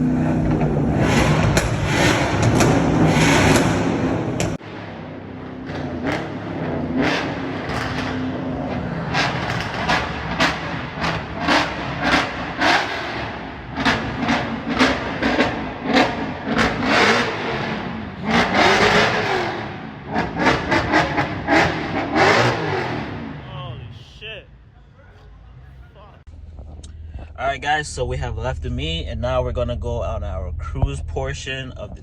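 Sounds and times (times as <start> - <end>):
performance car engines revving: 0.0 - 24.1.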